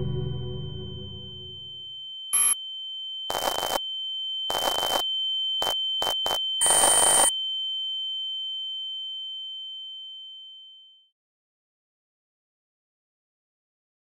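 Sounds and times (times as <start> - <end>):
high electronic sine tone: 0.0 - 2.6, 3.3 - 3.8, 4.5 - 7.3
static noise bursts: 2.4 - 2.6, 3.3 - 3.8, 4.5 - 5.0, 5.6 - 7.3.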